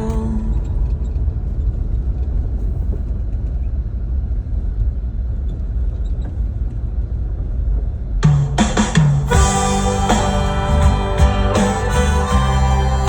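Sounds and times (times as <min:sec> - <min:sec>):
car engine and tyre rumble: 0:00.0 - 0:08.2
music: 0:08.3 - 0:13.0.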